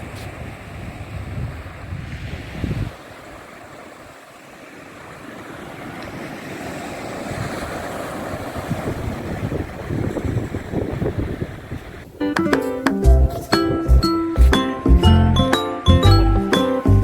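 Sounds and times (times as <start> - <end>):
wind gusting on microphone: 0.0 - 4.2, 6.1 - 14.2
sea waves washing ashore: 0.0 - 16.9.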